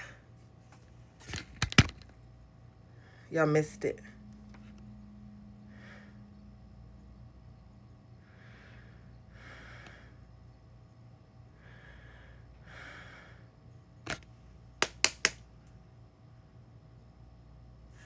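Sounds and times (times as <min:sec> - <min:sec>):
person breathing: 0:02.9 - 0:03.3, 0:05.6 - 0:06.4, 0:08.2 - 0:10.2, 0:11.5 - 0:13.5
sharp clicks: 0:14.8 - 0:15.4.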